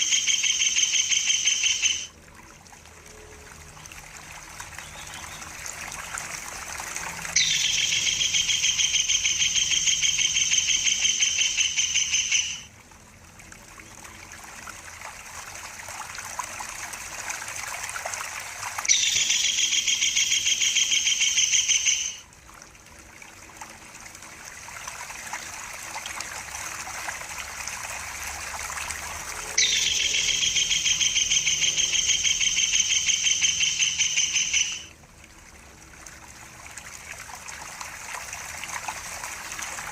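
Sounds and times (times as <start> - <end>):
kingfisher rattling trill: 0.0 - 2.1, 7.4 - 12.7, 29.6 - 34.9
running water trickling: 0.0 - 39.9.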